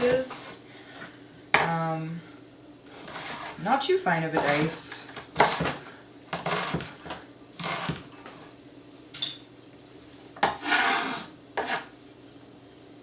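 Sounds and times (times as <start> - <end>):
knife cutting on a cutting board: 3.0 - 3.6, 10.4 - 11.9
knife scraping board: 3.0 - 3.6, 5.4 - 6.9, 7.6 - 8.4, 10.4 - 11.9.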